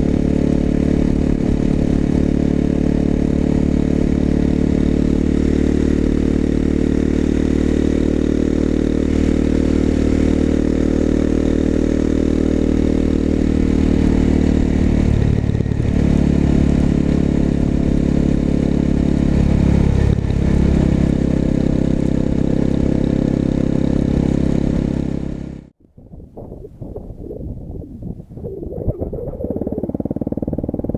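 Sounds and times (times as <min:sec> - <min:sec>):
motorcycle exhaust: 0:00.0 - 0:25.8, 0:28.4 - 0:30.9.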